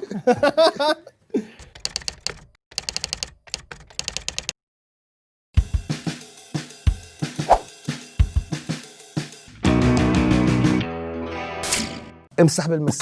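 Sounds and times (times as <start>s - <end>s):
keyboard typing clicks: 1.6s - 4.6s
music with drum kit: 5.6s - 10.9s.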